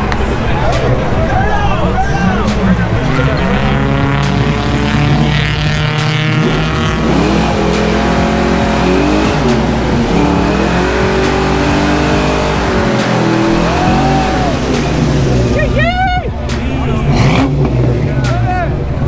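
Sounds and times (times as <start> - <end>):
car engine revving hard: 2.3 - 15.9, 16.9 - 18.3.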